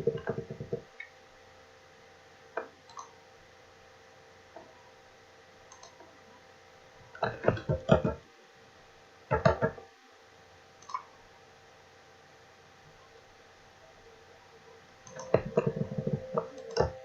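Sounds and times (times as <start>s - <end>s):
computer mouse clicking: 2.6s - 3.2s, 5.7s - 6.0s, 10.8s - 11.1s, 15.0s - 17.0s.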